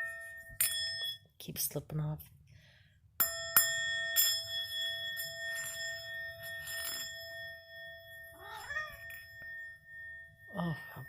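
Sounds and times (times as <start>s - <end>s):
singing bowls ringing: 0.0s - 1.3s, 3.2s - 11.0s
cat meowing: 8.4s - 9.1s.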